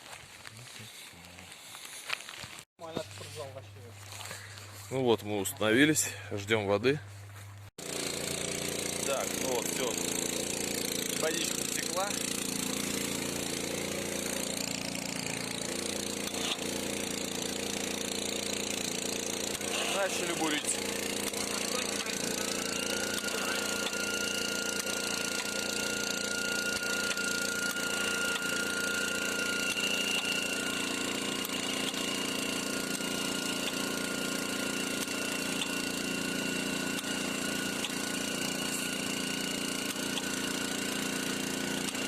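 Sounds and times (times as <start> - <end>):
drilling rig running: 7.8 - 42.0
motor pump running: 7.8 - 42.0
steady high whine: 19.7 - 40.6.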